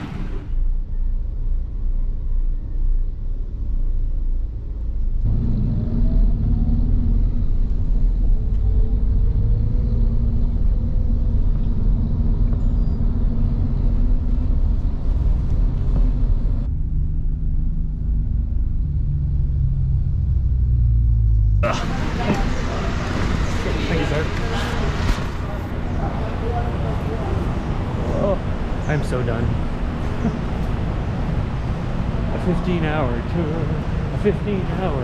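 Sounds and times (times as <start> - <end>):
vehicle engine rumbling: 0.0 - 35.0.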